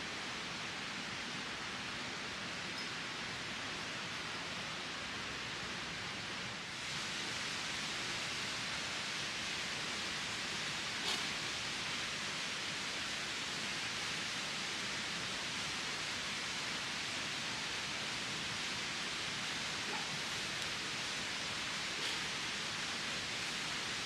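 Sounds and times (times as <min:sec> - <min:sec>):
outdoor rushing hiss: 0:04.8 - 0:24.0.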